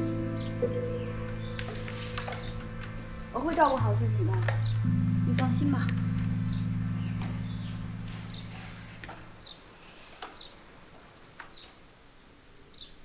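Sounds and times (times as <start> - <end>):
sustained low music notes: 0.0 - 9.8
high bird chirps: 3.6 - 10.7.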